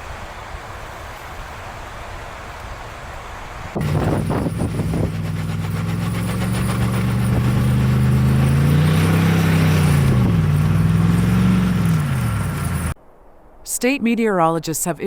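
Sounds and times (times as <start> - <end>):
vehicle engine revving: 3.8 - 13.0.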